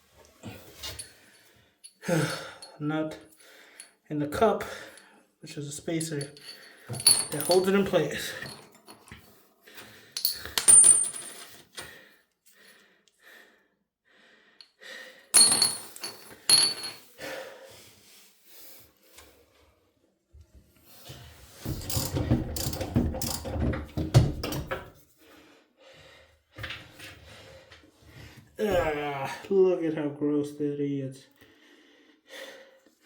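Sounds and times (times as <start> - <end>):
metal hardware clinking: 5.9 - 9.1, 10.2 - 11.5, 15.4 - 17.0
metal parts clattering and scraping: 5.9 - 9.2.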